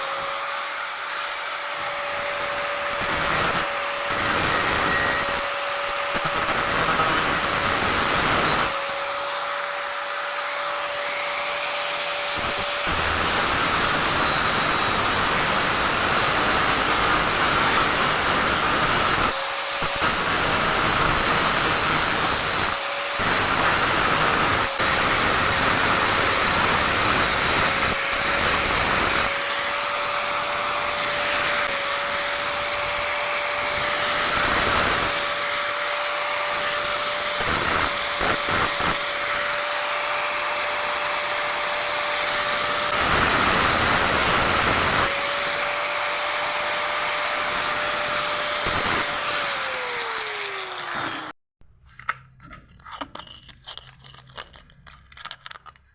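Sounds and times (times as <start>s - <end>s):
angle grinder whining: 0.0s - 51.4s
grinder spinning down: 0.0s - 51.4s
grinding on saw teeth: 52.8s - 55.9s.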